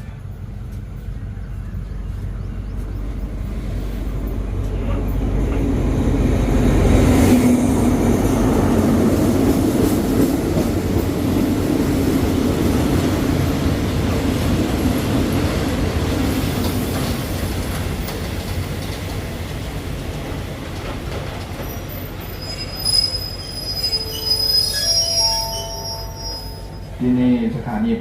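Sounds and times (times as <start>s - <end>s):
train wheels clacking over rails: 3.5s - 23.0s.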